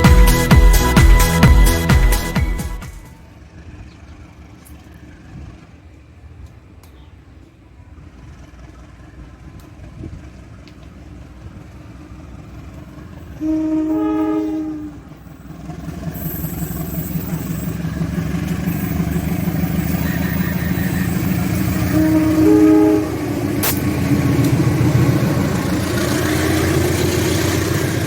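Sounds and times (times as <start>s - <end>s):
rumble of approaching train: 0.0s - 28.0s
train horn: 13.3s - 15.3s, 19.7s - 24.6s.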